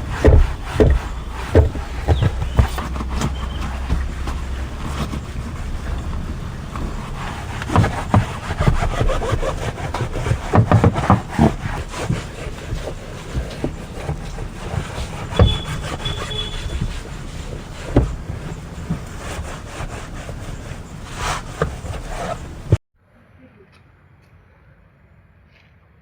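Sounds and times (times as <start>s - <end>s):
knocks and clicks: 0.0s - 20.0s
rubbing and scrubbing: 0.0s - 22.8s.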